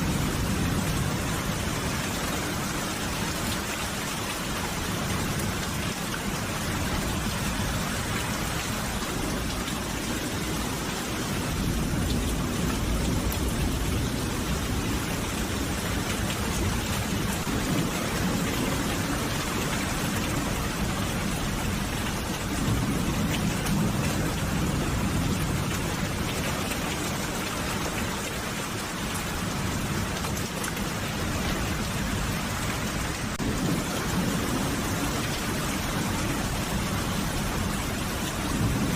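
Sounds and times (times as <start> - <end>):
steady rain falling: 0.0 - 38.9
thunder rumbling: 31.2 - 38.9.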